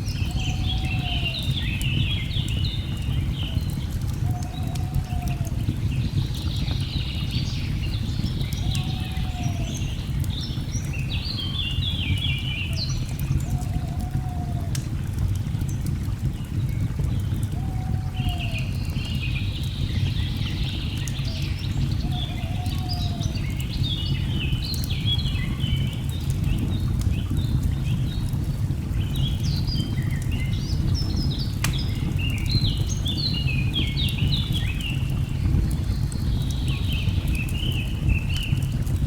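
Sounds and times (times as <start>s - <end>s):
wood fire crackling: 0.0s - 39.0s
small birds chirping: 18.2s - 39.0s.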